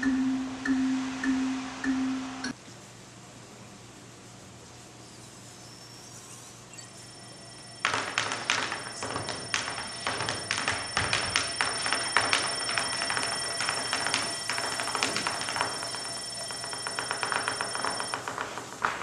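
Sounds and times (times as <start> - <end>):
tap shoes on stage floor: 7.8 - 19.0.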